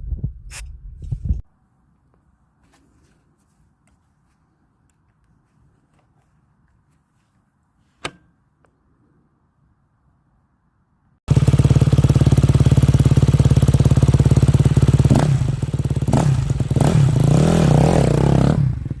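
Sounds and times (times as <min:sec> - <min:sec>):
dirt bike engine revving: 0:11.3 - 0:19.0.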